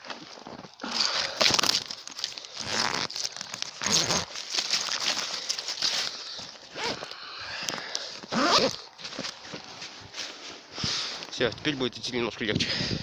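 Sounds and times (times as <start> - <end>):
crunching bursts: 0.0 - 10.3
birch bark crinkling: 0.0 - 12.0
gear being handled: 1.2 - 9.9.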